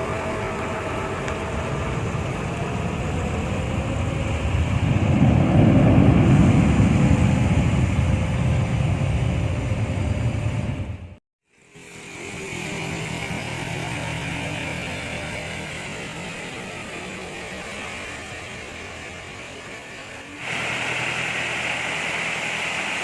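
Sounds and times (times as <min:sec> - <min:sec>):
jet engines rumbling and whining: 0:00.0 - 0:23.0
heavy rain hiss: 0:11.6 - 0:23.0.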